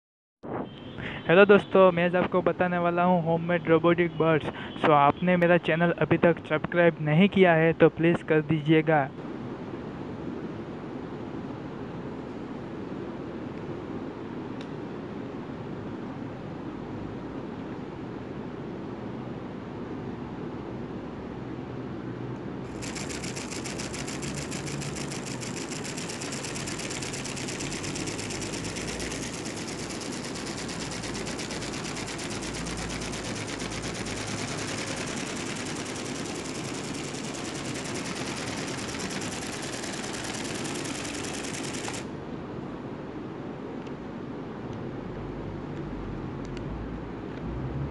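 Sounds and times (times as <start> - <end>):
mechanical rattle: 22.7 - 42.1.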